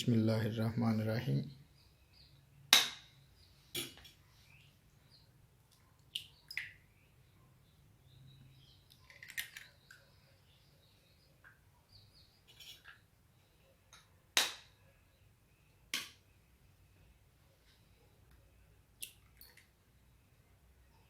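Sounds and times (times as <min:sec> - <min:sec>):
faint bird chirps: 0:01.4 - 0:13.9.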